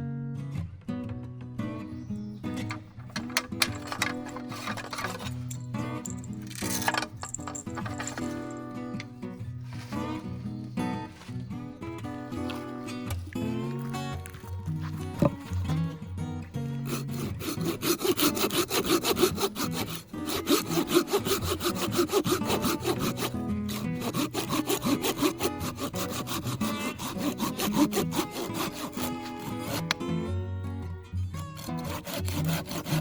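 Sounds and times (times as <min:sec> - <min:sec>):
background music: 0:00.0 - 0:33.0
hand saw cutting wood: 0:02.6 - 0:11.4, 0:14.8 - 0:16.0, 0:16.7 - 0:30.3, 0:31.4 - 0:33.0.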